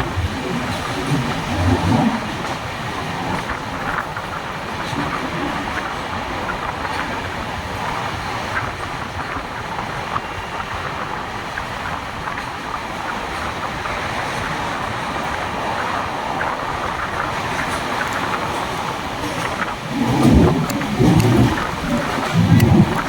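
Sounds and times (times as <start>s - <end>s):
train coaches rumbling and rattling: 0.0s - 23.0s.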